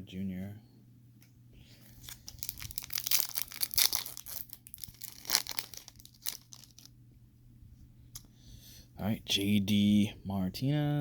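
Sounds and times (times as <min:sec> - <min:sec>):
foil wrapper tearing and crinkling: 0:02.0 - 0:06.9.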